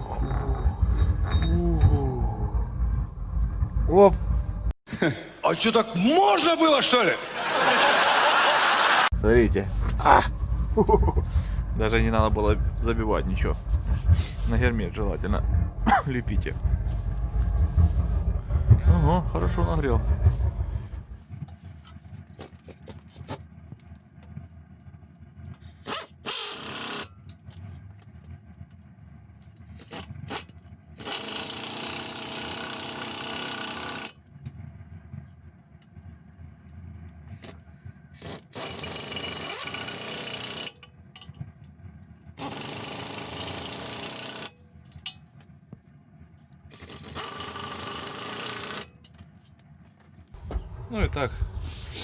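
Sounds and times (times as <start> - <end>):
metal clinks of tools: 0.0 - 2.0, 21.5 - 23.4
impact wrench bursts: 25.6 - 27.5, 29.6 - 34.2, 37.3 - 40.9, 42.4 - 45.2, 46.7 - 49.2.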